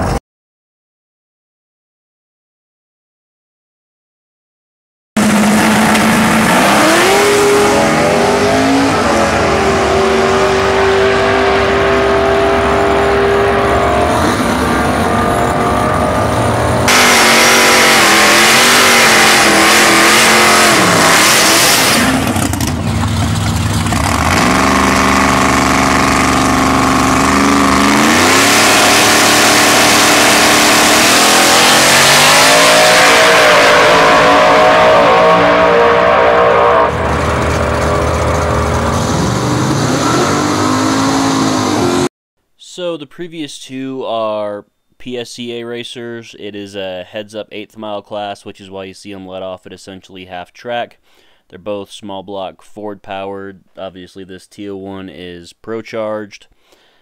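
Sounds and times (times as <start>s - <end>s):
race car engines revving: 5.2s - 42.1s.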